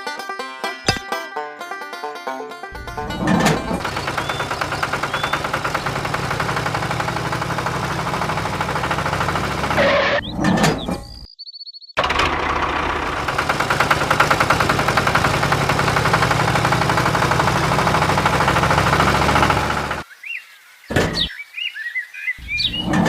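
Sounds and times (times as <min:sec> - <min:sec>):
rattling motor running: 0:02.8 - 0:10.2, 0:12.0 - 0:20.0.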